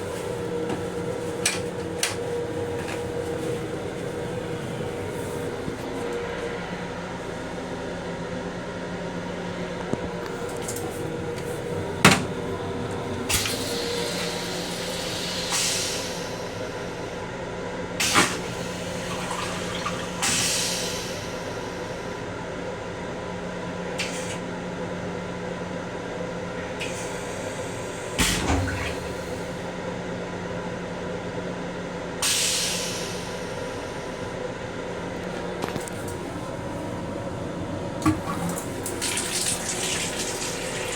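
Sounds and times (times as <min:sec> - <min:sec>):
railcar hum: 0:00.0 - 0:40.9
water rushing from toilet and sink: 0:18.0 - 0:21.3, 0:38.0 - 0:40.9.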